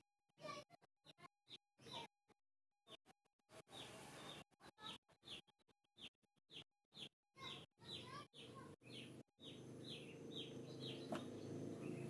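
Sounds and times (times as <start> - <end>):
small bird chirping falling notes: 10.0 - 12.0.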